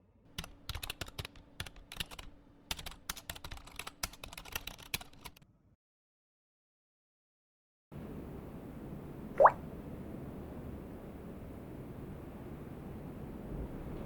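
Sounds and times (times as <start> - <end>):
typing on a keyboard: 0.3 - 5.4.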